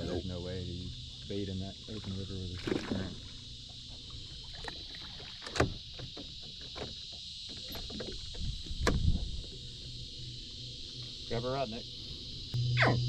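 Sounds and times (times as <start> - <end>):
insects humming: 0.0 - 13.0
boat knocking: 0.8 - 9.9
water sloshing: 0.8 - 9.9.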